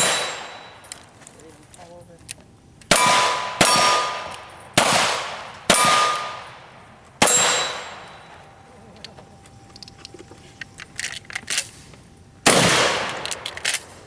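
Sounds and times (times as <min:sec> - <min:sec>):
gunshots: 0:00.0 - 0:00.9, 0:02.9 - 0:08.3, 0:12.4 - 0:14.0
steel target ringing: 0:00.0 - 0:01.1, 0:02.9 - 0:08.6.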